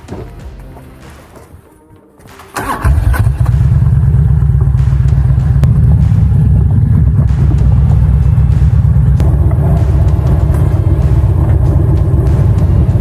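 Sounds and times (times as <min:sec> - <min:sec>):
motorcycle engine running hard: 0:02.8 - 0:13.0.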